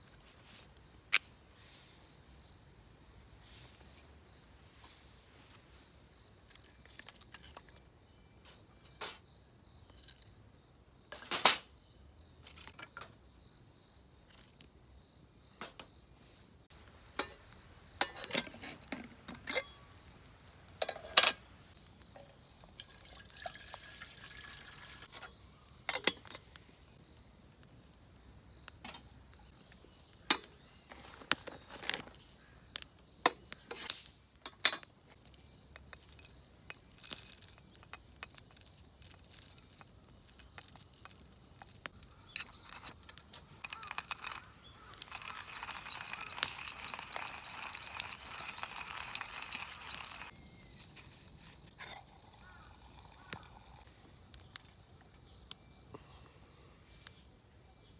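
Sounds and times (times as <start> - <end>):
tableware clicks and knocks: 20.8 - 21.4, 43.6 - 50.3
liquid pouring into a cup: 22.6 - 25.1, 45.0 - 50.3.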